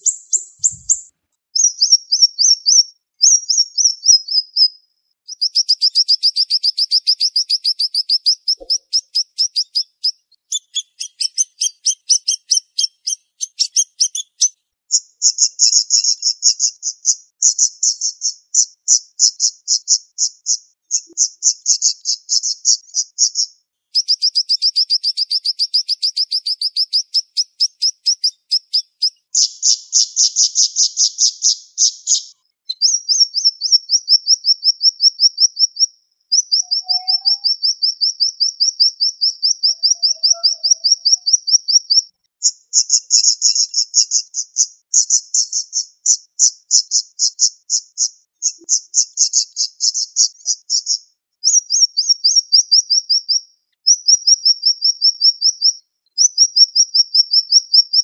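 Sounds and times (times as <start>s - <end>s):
songbird singing fast trills: 0.0s - 58.0s.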